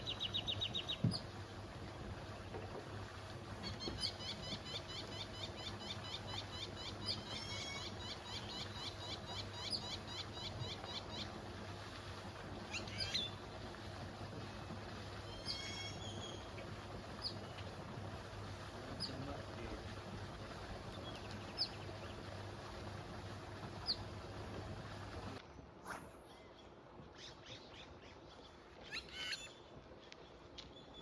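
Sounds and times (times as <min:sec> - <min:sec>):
birds chirping: 0:00.0 - 0:01.3, 0:03.6 - 0:11.4, 0:15.1 - 0:17.8, 0:18.7 - 0:22.6, 0:23.7 - 0:24.3.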